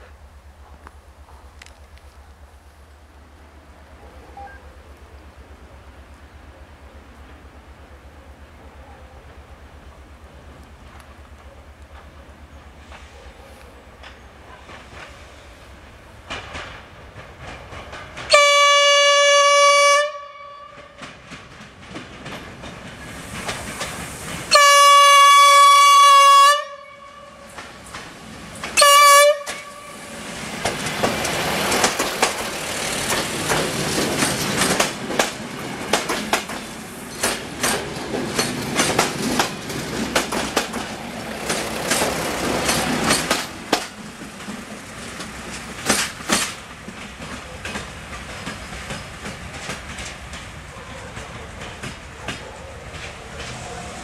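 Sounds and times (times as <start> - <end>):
train wheels clacking over rail joints: 9.2 - 19.7, 20.7 - 25.6, 27.4 - 54.0
train horn blasts: 18.3 - 21.2, 24.5 - 27.6, 28.8 - 30.1.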